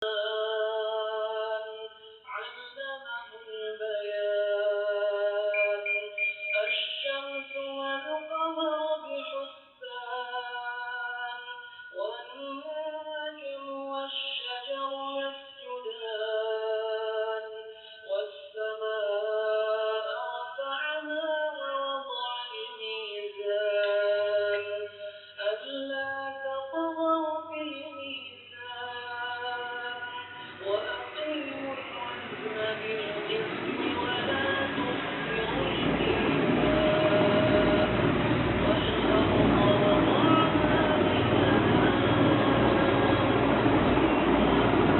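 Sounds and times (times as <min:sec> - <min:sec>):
person singing a song: 0:00.0 - 0:44.0
faint low hum: 0:29.3 - 0:44.9.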